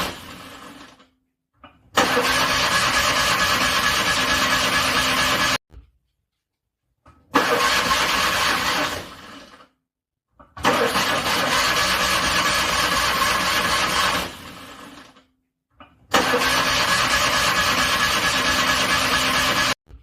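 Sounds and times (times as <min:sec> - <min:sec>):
car engine cranking on starter: 0:02.0 - 0:05.6, 0:07.3 - 0:09.6, 0:10.6 - 0:15.2, 0:16.1 - 0:19.8.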